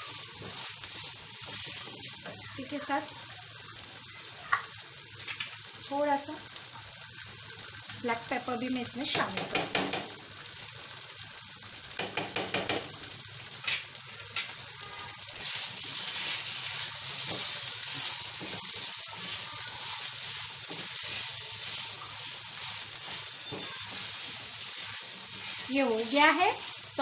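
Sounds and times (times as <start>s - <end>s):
filling sizzling in a frying pan: 0.0s - 27.0s
utensil knocking against a pan: 9.1s - 10.2s, 12.0s - 12.9s.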